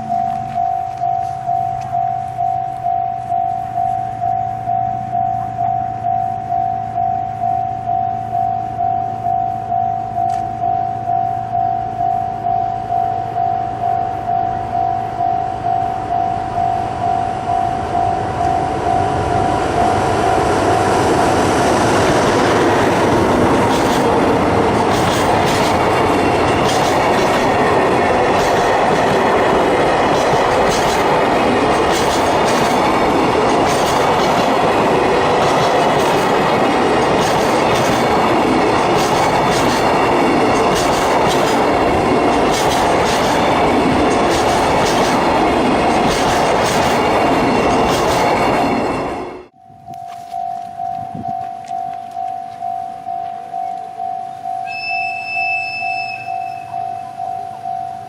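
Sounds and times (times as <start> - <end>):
pulsing warning tone: 0.0 - 58.0
train rumble: 0.0 - 58.0
wheels clacking over rail joints: 18.1 - 49.5.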